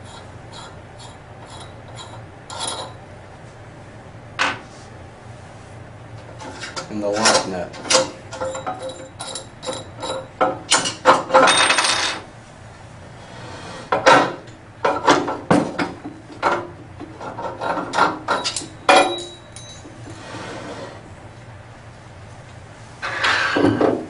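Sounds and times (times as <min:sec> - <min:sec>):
metal rasping scrape: 0:00.0 - 0:03.0, 0:20.1 - 0:21.0
metal parts clicking and clinking: 0:07.2 - 0:12.2, 0:18.3 - 0:19.9.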